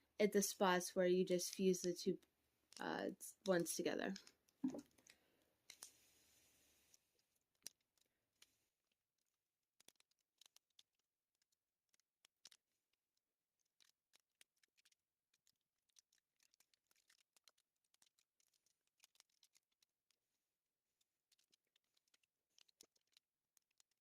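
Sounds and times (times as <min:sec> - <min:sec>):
faint crackles and clicks: 0:00.5 - 0:24.0.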